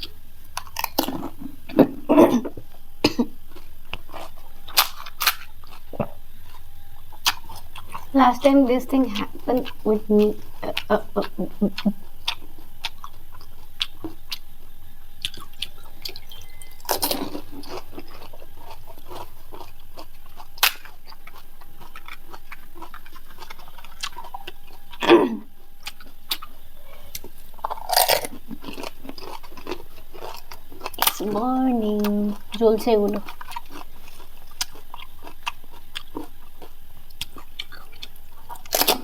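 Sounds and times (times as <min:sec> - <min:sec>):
wet chewing: 0:00.0 - 0:39.0
crisp shells crunching: 0:02.4 - 0:31.6.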